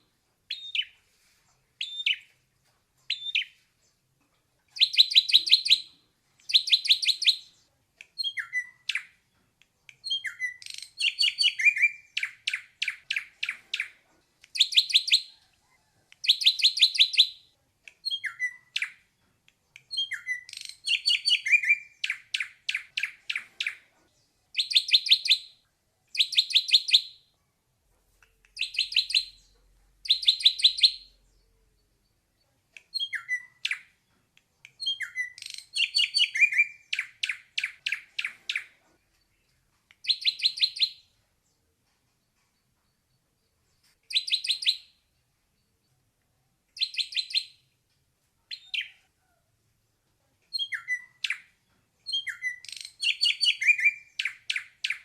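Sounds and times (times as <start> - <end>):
bird singing rattling phrases: 10.0 - 14.0, 19.9 - 27.2, 34.8 - 41.2.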